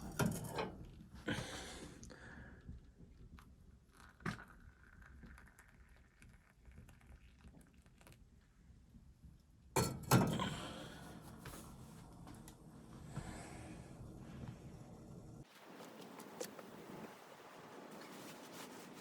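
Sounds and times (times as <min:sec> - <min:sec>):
clattering and rustling: 0:00.0 - 0:01.0.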